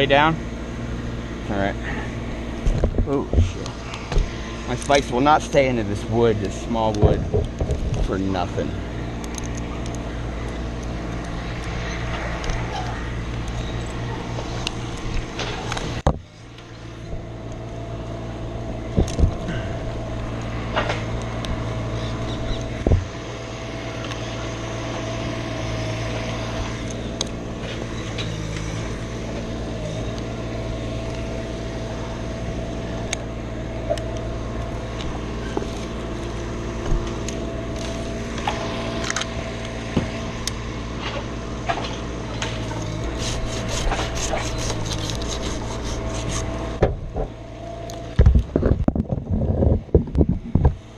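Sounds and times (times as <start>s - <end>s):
engine running: 0.0s - 50.9s.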